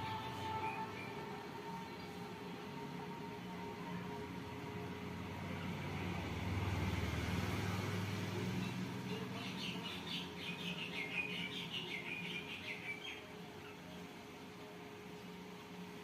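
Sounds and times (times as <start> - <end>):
small birds chirping: 8.5 - 14.0.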